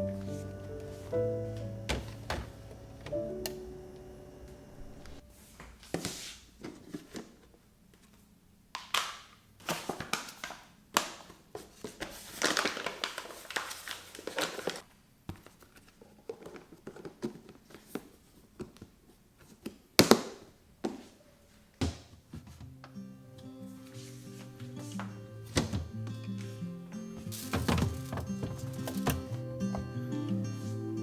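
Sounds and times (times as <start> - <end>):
objects set down with thunks: 1.8 - 3.2, 25.5 - 25.9, 27.2 - 29.9
packaging rustling: 8.9 - 18.2, 27.3 - 29.5.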